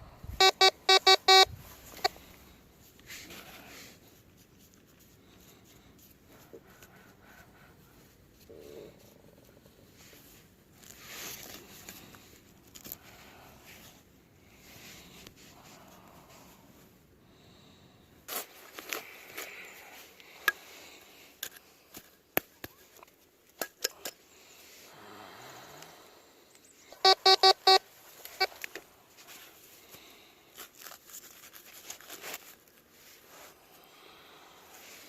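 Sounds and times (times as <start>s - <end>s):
metal detector pulsed beeps: 0.3s - 2.1s, 27.0s - 27.8s.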